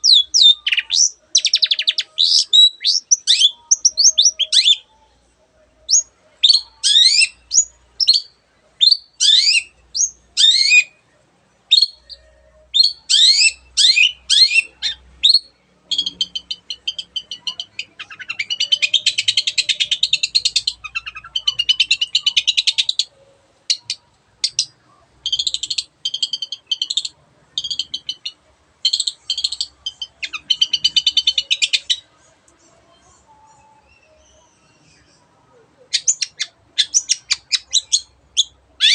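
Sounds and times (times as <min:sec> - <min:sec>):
bird harsh chattering: 0:35.9 - 0:38.9.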